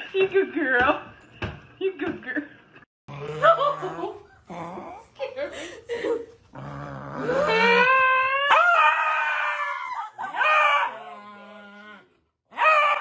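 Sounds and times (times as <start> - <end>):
dog howling: 7.0 - 13.0.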